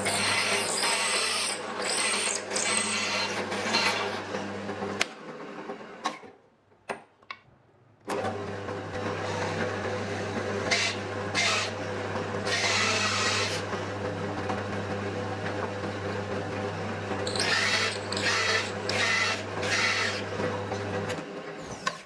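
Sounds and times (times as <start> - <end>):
power tool motor humming: 0.0 - 4.0, 12.4 - 13.7, 17.2 - 20.4
tool hissing into wood: 17.3 - 19.8.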